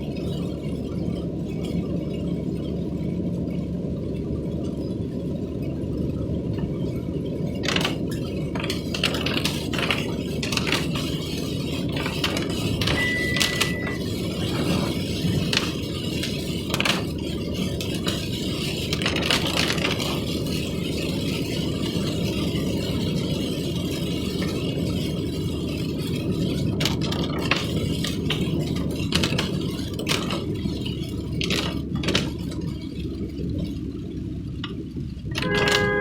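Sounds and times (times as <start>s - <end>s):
vehicle running noise: 0.0s - 36.0s
rattles and knocks: 6.5s - 21.2s, 24.3s - 36.0s.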